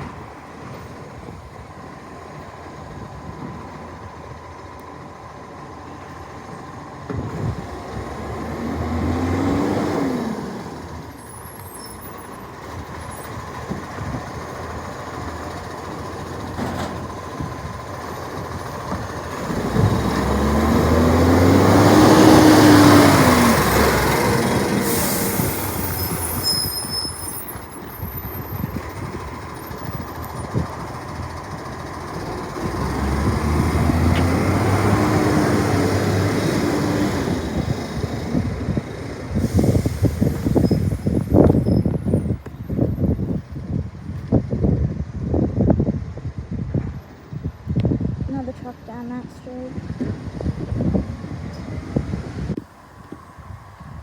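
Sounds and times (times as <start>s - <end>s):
truck diesel engine revving: 5.5s - 43.4s
air brake hiss: 24.6s - 27.6s, 39.3s - 41.4s.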